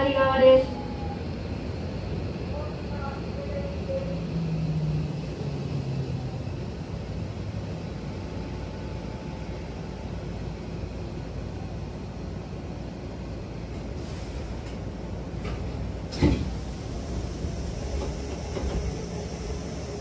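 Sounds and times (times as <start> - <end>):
train rumbling: 0.0 - 20.0
air hiss: 14.0 - 14.8.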